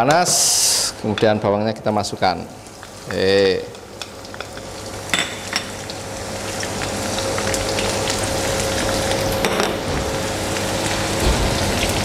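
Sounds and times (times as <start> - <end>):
shallots sizzling in hot oil: 2.0 - 12.0.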